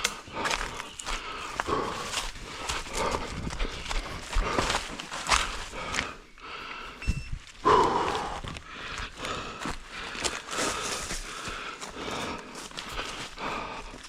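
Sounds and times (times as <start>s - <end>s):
running footsteps in undergrowth: 0.1s - 14.0s
leaves and brush rustling: 0.3s - 6.3s, 8.4s - 14.0s.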